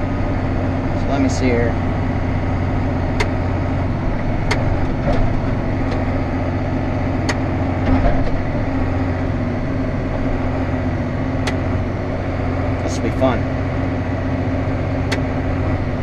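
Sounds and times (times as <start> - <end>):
tractor engine running: 0.0 - 16.0
sharp clicks: 3.1 - 3.4, 4.4 - 6.0, 7.2 - 7.4, 11.4 - 11.6, 15.1 - 15.3.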